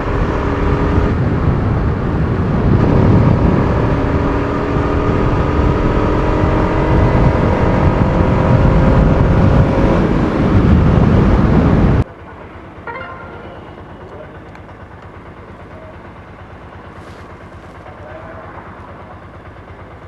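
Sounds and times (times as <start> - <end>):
wind and road noise: 0.0 - 12.1
motorcycle engine running: 0.0 - 20.0.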